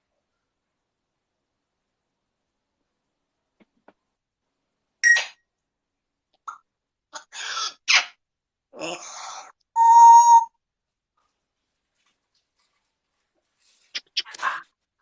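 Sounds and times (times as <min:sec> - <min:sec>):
parrot whistling: 0:09.8 - 0:10.5.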